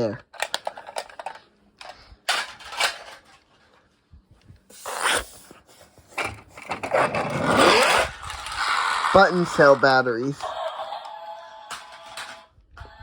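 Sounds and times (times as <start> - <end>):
plastic toy scraping: 4.8 - 10.7.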